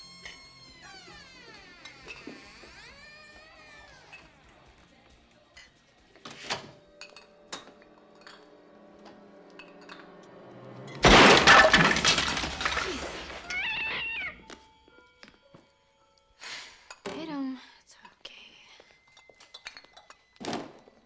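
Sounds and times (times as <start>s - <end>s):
glass breaking crash: 10.9s - 14.0s
faint glass clinks: 19.1s - 20.3s.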